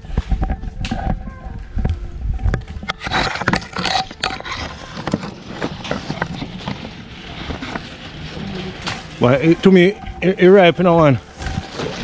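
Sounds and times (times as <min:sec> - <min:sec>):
leaves and branches rustling: 0:02.6 - 0:12.0.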